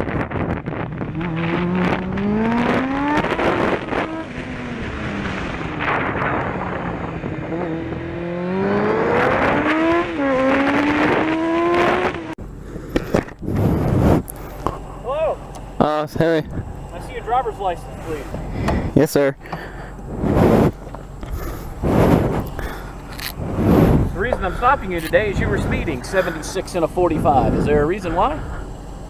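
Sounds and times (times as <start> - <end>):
wind rush: 0.0 - 12.4, 13.2 - 14.3, 20.1 - 28.7
motorcycle engine accelerating: 0.0 - 29.0.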